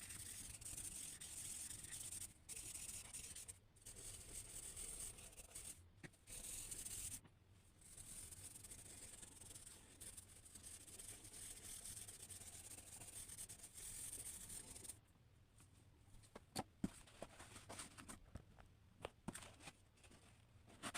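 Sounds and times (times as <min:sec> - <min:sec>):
pencil scratching on paper: 0:00.0 - 0:07.2, 0:07.8 - 0:15.0.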